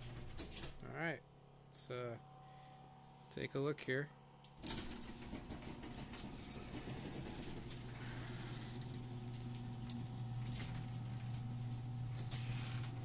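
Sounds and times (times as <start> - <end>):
garage door motor hum: 0.0 - 3.3, 4.2 - 13.0.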